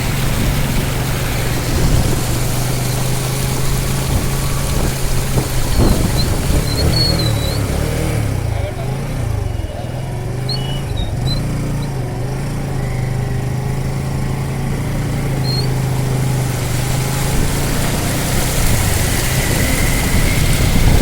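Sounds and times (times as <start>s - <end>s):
motor engine droning: 0.0s - 21.0s
rushing noise: 15.7s - 21.0s.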